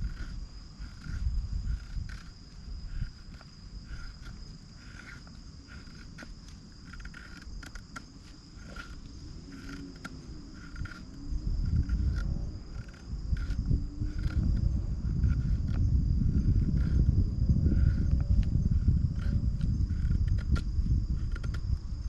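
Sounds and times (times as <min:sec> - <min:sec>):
high insect trill: 0:00.0 - 0:22.0
insects chirping: 0:00.0 - 0:22.0
low rumble: 0:08.2 - 0:22.0.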